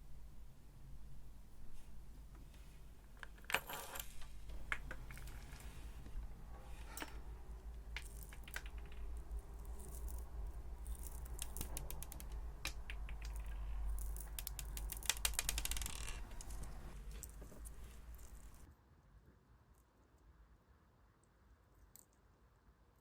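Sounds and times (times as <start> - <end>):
slime squishing and crackling: 8.0 - 16.7.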